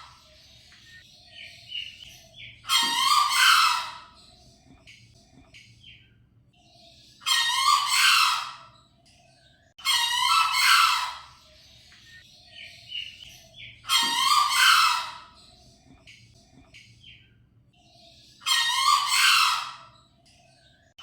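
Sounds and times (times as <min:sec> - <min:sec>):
junglefowl crowing: 0:02.7 - 0:04.0, 0:07.3 - 0:08.6, 0:09.8 - 0:11.3, 0:13.9 - 0:15.3, 0:18.5 - 0:19.9.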